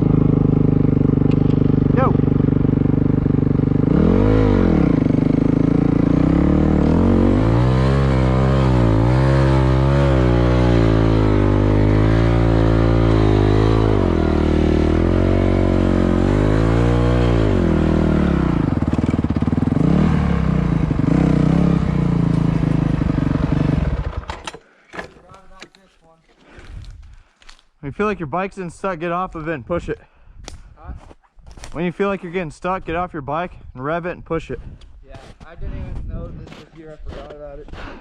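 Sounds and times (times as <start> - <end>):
dirt bike engine revving: 0.0 - 24.4.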